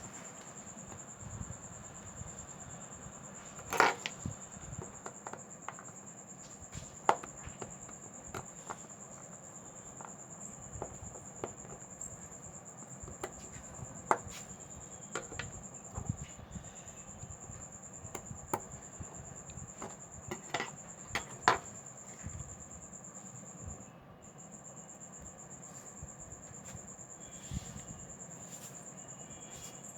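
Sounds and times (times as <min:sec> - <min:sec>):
small tools clicking and tapping: 0:03.6 - 0:06.0, 0:12.8 - 0:16.3, 0:18.1 - 0:21.8
steady high-pitched whine: 0:06.1 - 0:29.9.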